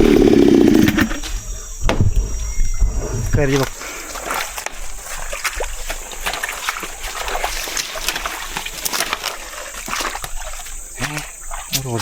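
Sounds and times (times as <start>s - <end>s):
splashing in shallow water: 3.5s - 12.0s.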